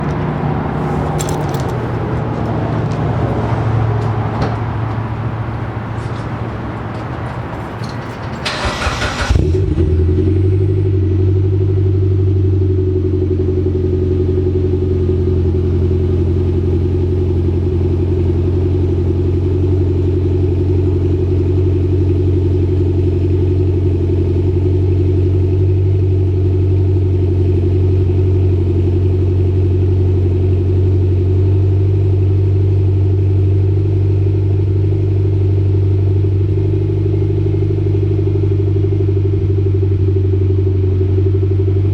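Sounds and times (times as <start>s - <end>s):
car engine cold start and idle: 0.0s - 41.9s.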